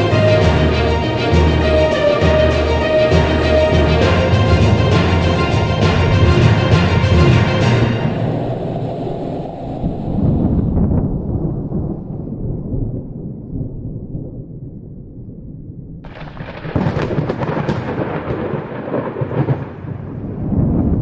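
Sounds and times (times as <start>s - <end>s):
thunder rumble: 0.0s - 21.0s
sharp crackling thunderclap: 16.0s - 21.0s.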